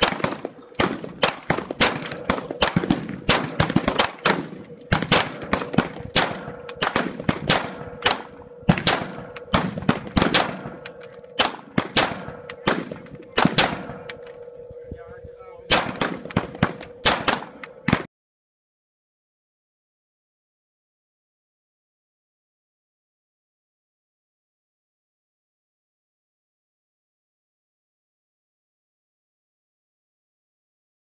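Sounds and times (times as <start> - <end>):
rifle firing rapidly: 0.0 - 14.2, 15.7 - 18.1.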